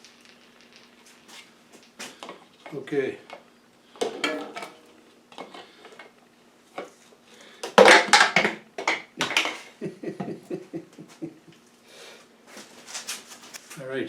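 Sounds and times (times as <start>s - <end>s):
funnel and bottle clattering: 0.0s - 1.5s, 3.9s - 6.2s, 7.6s - 9.7s.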